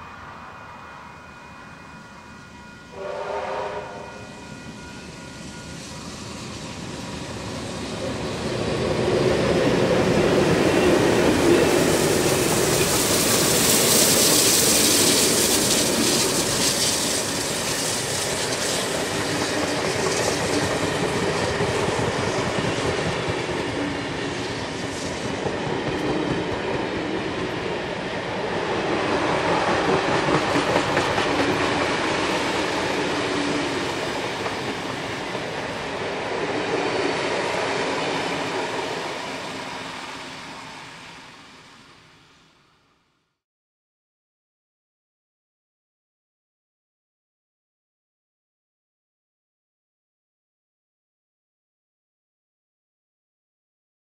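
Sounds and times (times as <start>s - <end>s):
diesel locomotives passing: 0.0s - 43.2s
train wheels clicking over rail joints: 29.2s - 36.0s.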